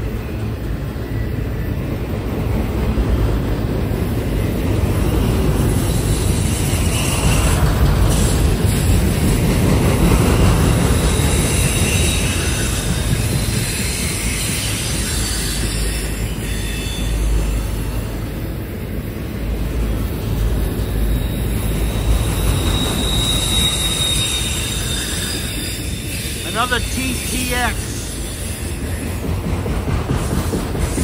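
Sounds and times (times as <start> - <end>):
steel wheels rumbling on rail: 0.0 - 31.0
faint high wheel squeal: 11.0 - 18.3, 20.9 - 26.5.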